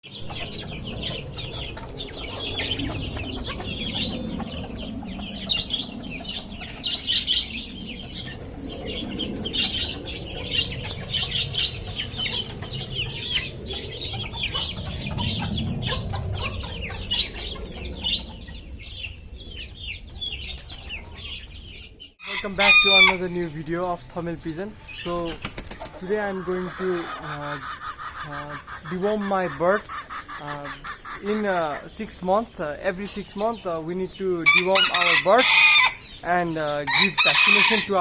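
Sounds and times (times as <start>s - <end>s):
high bird chirping: 0.0s - 27.5s.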